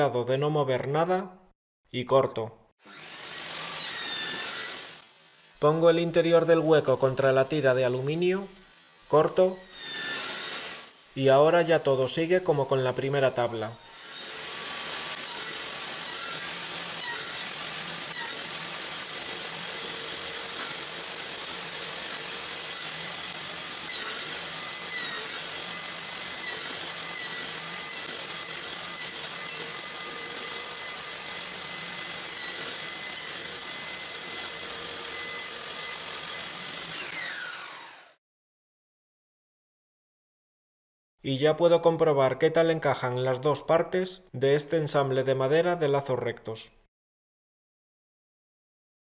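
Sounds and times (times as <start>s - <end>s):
table saw whine cutting wood: 2.8s - 38.2s.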